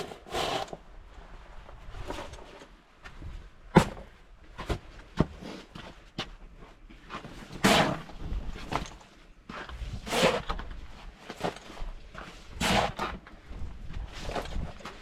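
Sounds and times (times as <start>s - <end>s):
shovel scraping snow: 0.0s - 0.8s, 7.6s - 8.1s, 9.9s - 10.6s, 12.5s - 13.2s
snow shovel blade knocking: 7.6s - 8.1s, 12.6s - 13.2s.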